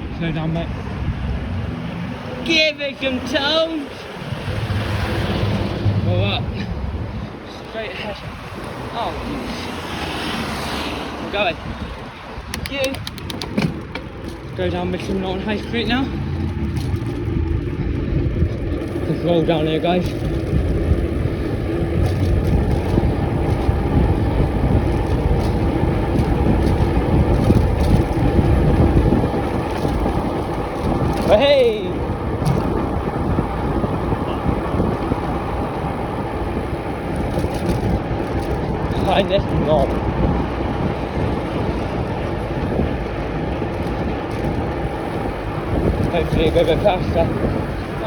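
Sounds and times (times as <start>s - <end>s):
road rumble: 0.0s - 48.0s
wind buffeting microphone: 0.0s - 48.0s.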